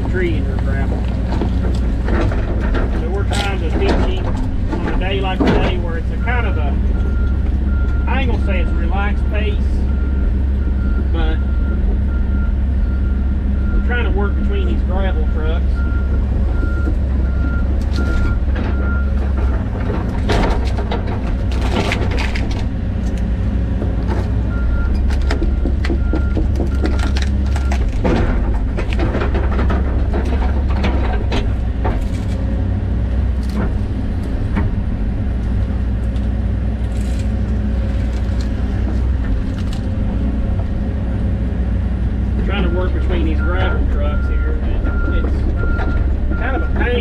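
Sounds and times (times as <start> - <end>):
trees and roots cracking: 0.0 - 9.1, 15.8 - 40.9
excavator diesel engine running: 0.0 - 47.0
backup alarm beeping: 5.1 - 19.2, 42.5 - 47.0.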